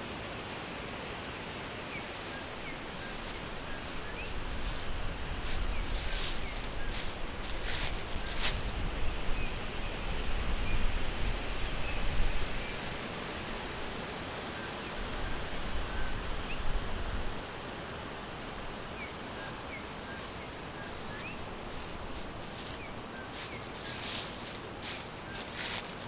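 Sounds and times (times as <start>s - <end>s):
forest rushing hiss with low rumble: 0.0s - 26.0s.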